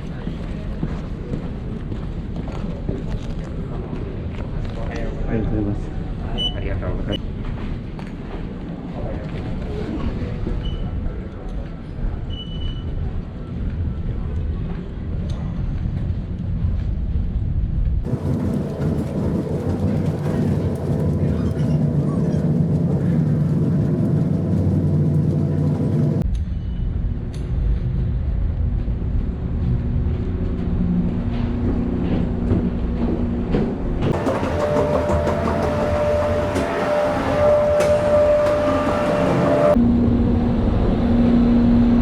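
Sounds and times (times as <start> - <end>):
machinery rumble and hum: 0.0 - 42.0
hum tones: 34.2 - 42.0.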